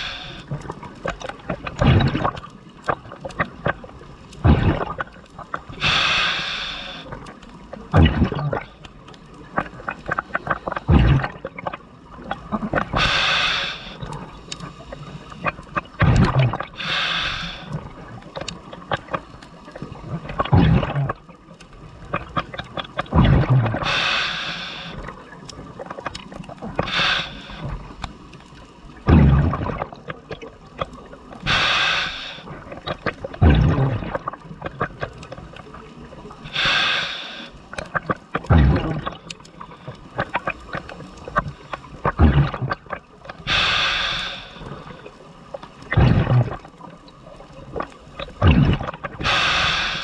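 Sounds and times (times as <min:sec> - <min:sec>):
regulator hiss on inhale: 0:00.0 - 0:00.6, 0:05.8 - 0:07.2, 0:12.9 - 0:15.5, 0:16.8 - 0:17.9, 0:23.8 - 0:25.2, 0:26.8 - 0:28.2, 0:31.4 - 0:32.7, 0:36.4 - 0:37.8, 0:43.4 - 0:45.3, 0:49.2 - 0:50.0
exhaust bubbles: 0:10.9 - 0:11.5, 0:23.1 - 0:25.0, 0:29.0 - 0:30.1, 0:33.1 - 0:35.1, 0:38.4 - 0:39.2, 0:41.3 - 0:44.9, 0:45.9 - 0:46.8, 0:48.3 - 0:50.0.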